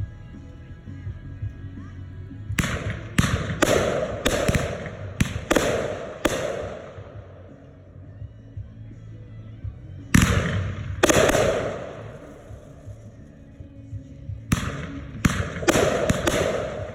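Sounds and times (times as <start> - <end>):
fireworks bangs: 2.6 - 7.5, 10.2 - 13.1, 14.5 - 16.9.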